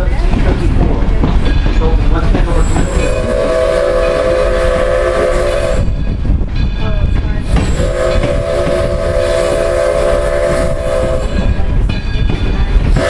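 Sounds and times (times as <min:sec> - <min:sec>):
rumble of moving train: 0:00.0 - 0:13.0
steam locomotive whistle: 0:02.8 - 0:06.0, 0:07.5 - 0:11.6.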